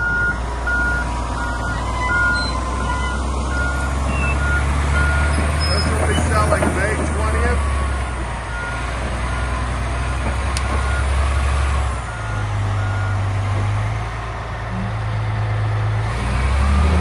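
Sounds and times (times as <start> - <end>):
reversing alarm beeping: 0.0 - 9.6, 10.7 - 13.3
bulldozer diesel engine: 0.0 - 17.0.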